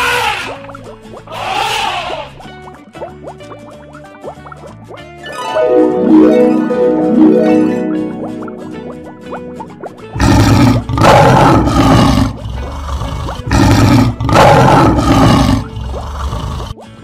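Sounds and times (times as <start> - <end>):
faint harp music: 2.4 - 10.2
lion roaring: 10.2 - 16.8.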